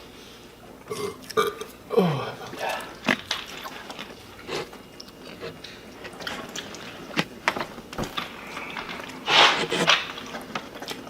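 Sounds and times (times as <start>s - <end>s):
chewing and food handling: 2.4s - 11.0s.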